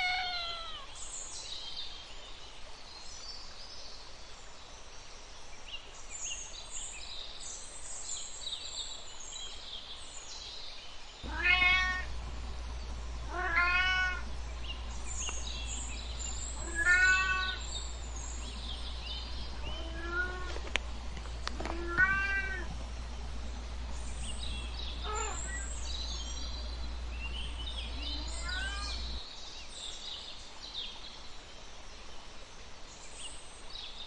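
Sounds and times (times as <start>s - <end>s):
cat meowing: 0.0s - 0.9s, 11.3s - 12.1s, 13.3s - 14.3s, 16.6s - 17.7s, 19.6s - 20.7s, 21.6s - 22.8s, 25.0s - 25.7s, 27.9s - 29.2s
faint high chirping: 11.2s - 29.2s.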